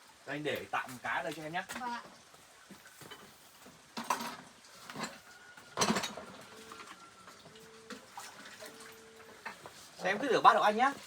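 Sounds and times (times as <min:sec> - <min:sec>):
dishes and utensils clattering: 0:04.0 - 0:05.2, 0:05.8 - 0:06.4.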